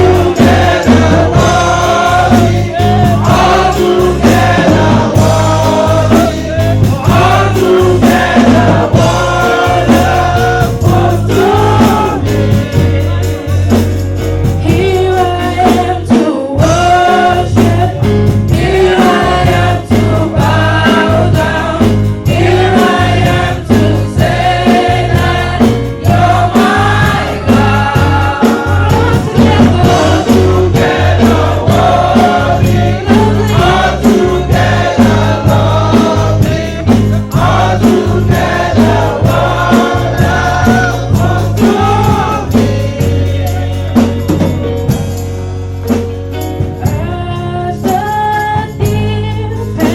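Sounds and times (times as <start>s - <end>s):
bass line: 0.0s - 16.0s, 16.6s - 49.9s
gospel choir singing: 0.0s - 45.3s, 46.8s - 49.9s
steady drum beat: 0.0s - 49.9s.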